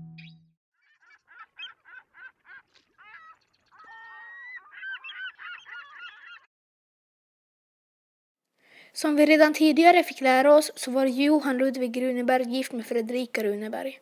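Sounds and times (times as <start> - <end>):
flock of birds calling: 0.8 - 6.5.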